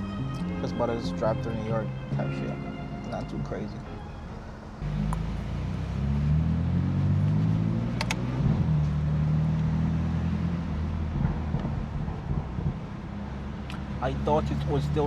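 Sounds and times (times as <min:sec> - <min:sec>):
car engine and exhaust pulling away: 0:00.0 - 0:15.0
sharp clicks: 0:08.0 - 0:08.3.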